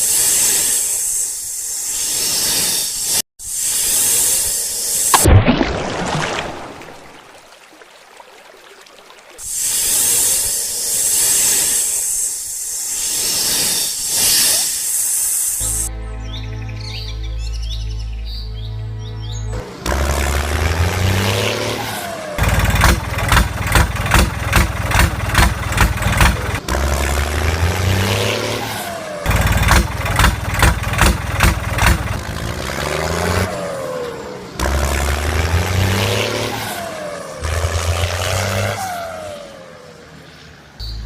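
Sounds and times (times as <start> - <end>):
truck engine revving: 19.5 - 40.6.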